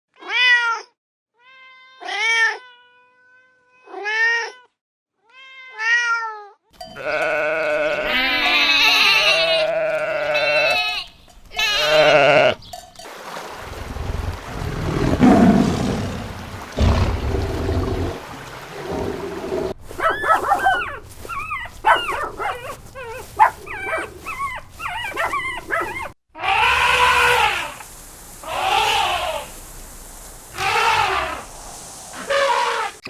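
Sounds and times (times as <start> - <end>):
goats bleating: 6.8 - 13.0, 19.9 - 26.1.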